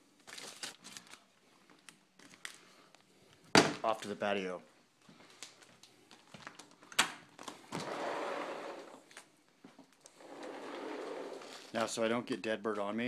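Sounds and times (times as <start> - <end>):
sliding door rolling on track: 7.8 - 9.0, 10.2 - 11.7.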